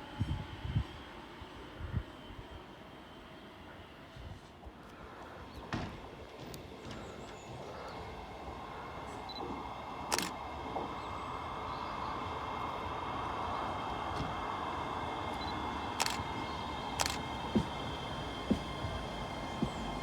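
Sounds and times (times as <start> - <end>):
train approaching: 0.0 - 20.0
sharp clicks: 10.1 - 10.4, 16.0 - 16.3, 17.0 - 17.3.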